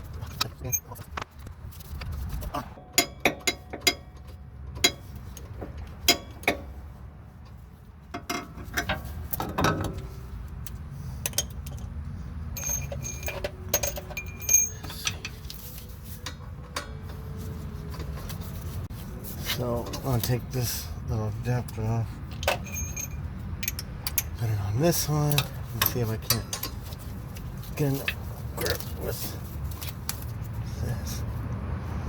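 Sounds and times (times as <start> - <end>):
ringing metallic clinks: 12.6 - 15.4, 22.4 - 26.8.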